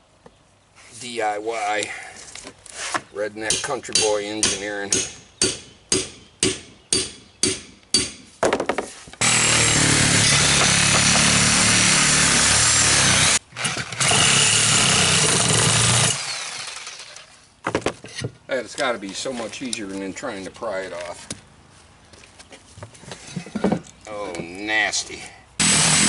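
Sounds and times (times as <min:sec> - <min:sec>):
power tool cutting: 0:09.2 - 0:17.3, 0:25.6 - 0:26.0.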